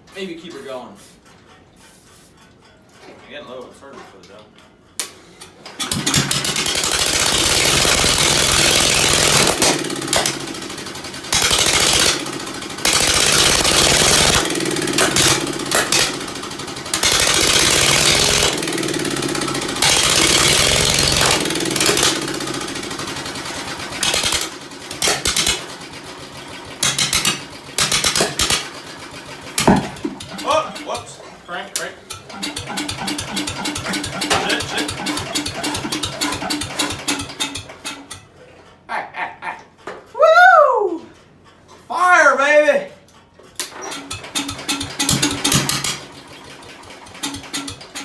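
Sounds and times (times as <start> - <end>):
engine running rough: 5.8 - 31.4, 32.0 - 38.2, 43.9 - 48.0.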